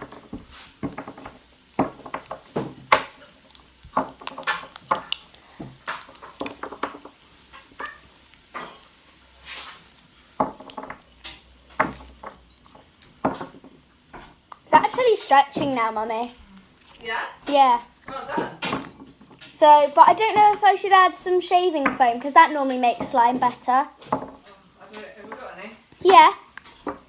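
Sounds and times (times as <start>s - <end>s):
slime clicking and popping: 0.0s - 8.9s.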